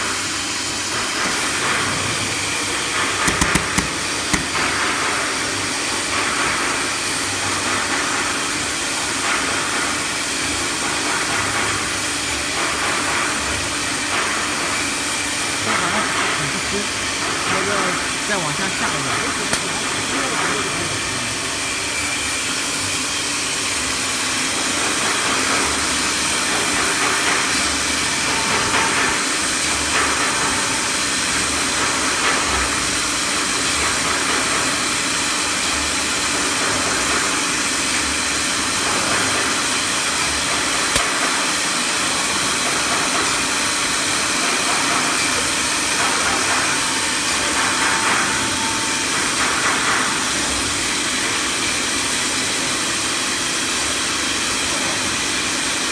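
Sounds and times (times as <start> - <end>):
cnc router spindle hiss: 0.0 - 4.9, 13.6 - 36.6.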